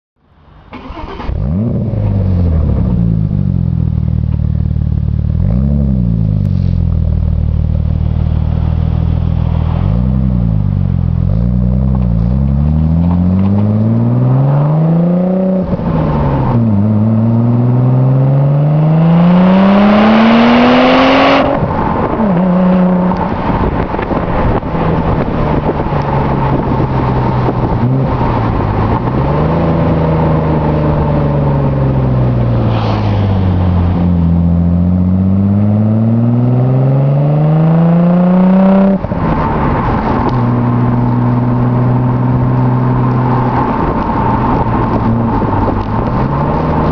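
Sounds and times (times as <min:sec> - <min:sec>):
exhaust crackles: 0:00.5 - 0:19.8
car engine revving: 0:00.5 - 0:46.9
gear change: 0:00.7 - 0:03.0.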